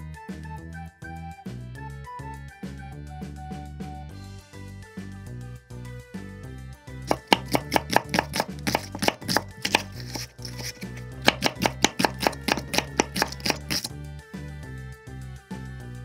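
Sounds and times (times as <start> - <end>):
knife slicing on wooden board: 7.1 - 13.9.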